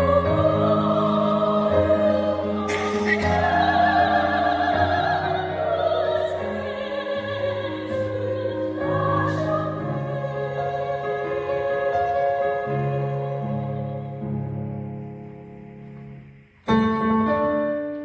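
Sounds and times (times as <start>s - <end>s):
vocal ensemble singing a hymn: 0.0s - 14.8s
sustained instrumental accompaniment: 0.6s - 6.9s.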